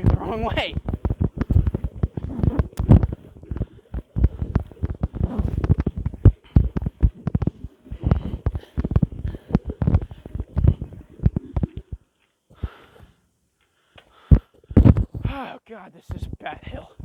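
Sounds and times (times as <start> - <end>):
microphone knocks and rubbing: 0.0 - 12.0, 14.3 - 15.3.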